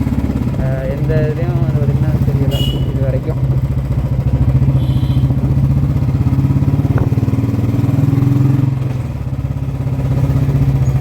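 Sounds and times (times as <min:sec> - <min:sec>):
motorcycle engine through loud exhaust: 0:00.0 - 0:11.0.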